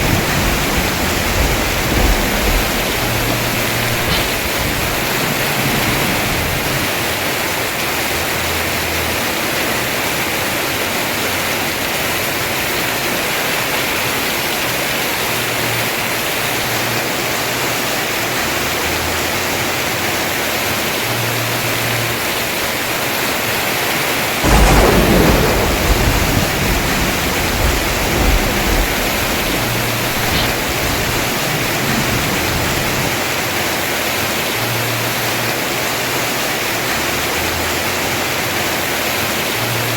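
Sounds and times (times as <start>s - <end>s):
thunder crack and rumbling: 0.0s - 7.5s, 24.2s - 34.1s
heavy rain on a roof: 0.0s - 39.9s.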